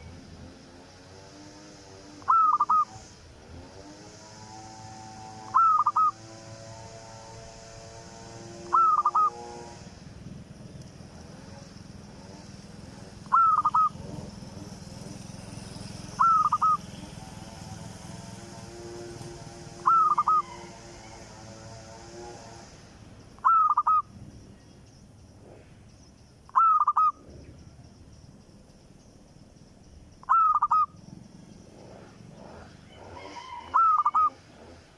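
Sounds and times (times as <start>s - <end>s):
steady background noise: 0.0s - 34.9s
bird calling: 2.2s - 3.1s, 5.4s - 6.2s, 8.6s - 9.7s, 13.2s - 14.4s, 16.0s - 17.4s, 19.7s - 21.3s, 23.3s - 24.8s, 26.2s - 31.5s, 32.8s - 34.8s.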